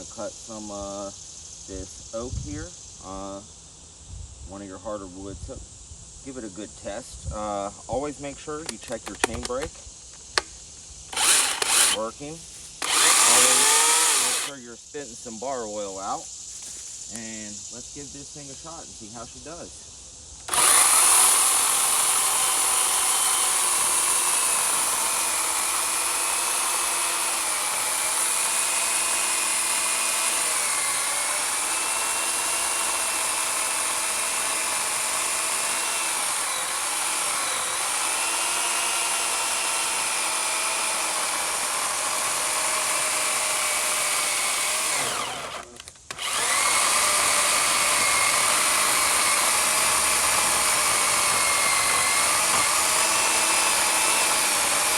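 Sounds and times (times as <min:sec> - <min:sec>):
electric chainsaw cutting log: 0:11.1 - 0:12.1, 0:12.8 - 0:14.6, 0:20.4 - 0:54.9.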